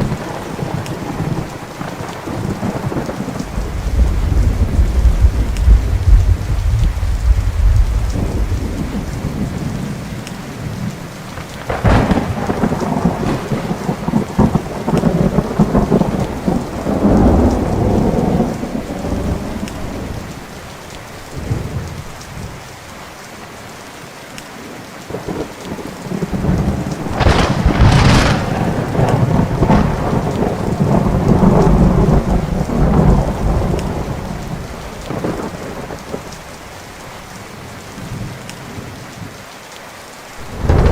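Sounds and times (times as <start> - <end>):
thunder cracks and rumbles: 0.0 - 20.4, 25.2 - 36.6, 40.4 - 40.9
steady rain: 0.0 - 40.9.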